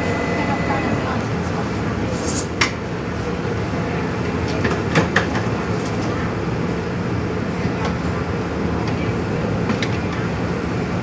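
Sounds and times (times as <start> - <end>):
metro train rumbling: 0.0 - 11.0.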